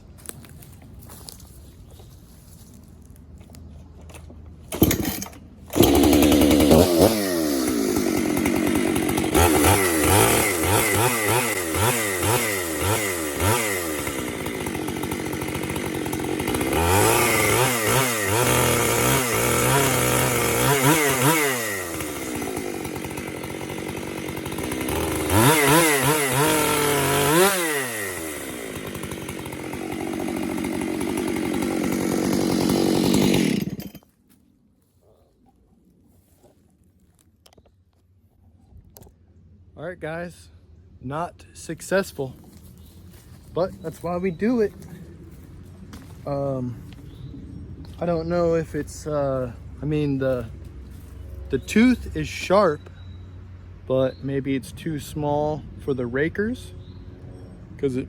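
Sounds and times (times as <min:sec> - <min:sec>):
chainsaw revving: 0:04.7 - 0:34.0, 0:47.9 - 0:52.9.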